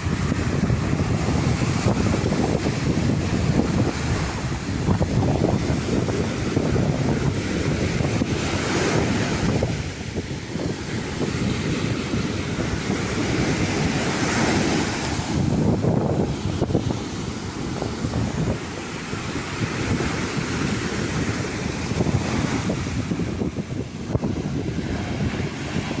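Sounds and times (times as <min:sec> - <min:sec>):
ocean surf washing onto beach: 0:00.0 - 0:26.0
wind buffeting microphone: 0:00.0 - 0:26.0.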